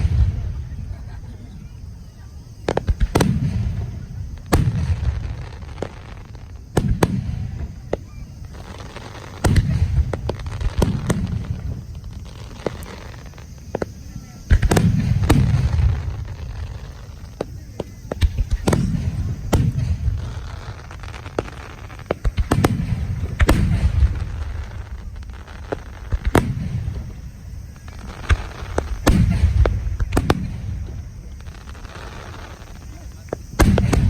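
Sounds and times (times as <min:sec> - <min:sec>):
firework shells bursting: 0:02.6 - 0:34.0.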